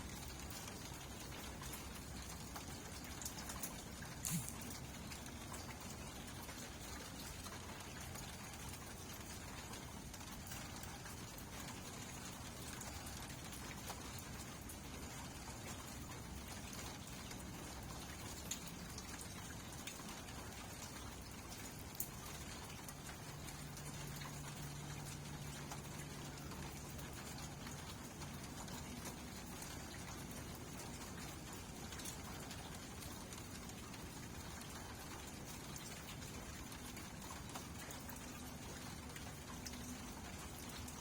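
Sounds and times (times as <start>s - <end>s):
low steady hum: 0.0s - 16.5s
steady rain falling: 0.0s - 41.0s.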